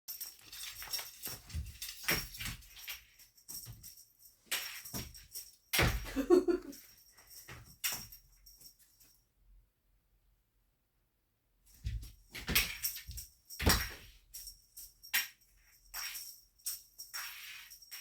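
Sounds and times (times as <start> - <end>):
cat toy rattling and rustling: 0.1 - 9.1, 11.7 - 18.0.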